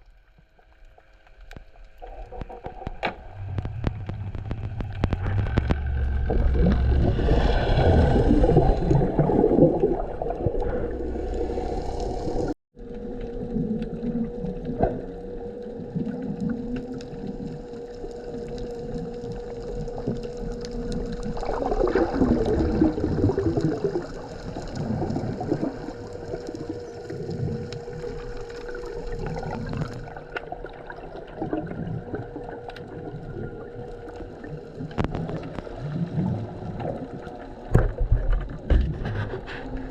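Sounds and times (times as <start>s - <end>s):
faint steady hum: 0.0s - 39.9s
underwater gurgling bubbles: 0.0s - 39.9s.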